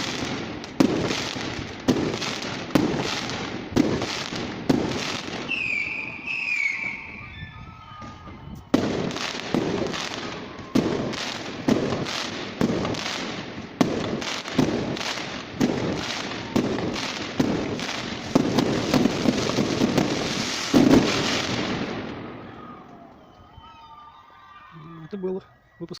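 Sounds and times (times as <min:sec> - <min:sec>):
firework whistle: 0:04.7 - 0:12.3, 0:16.0 - 0:26.0.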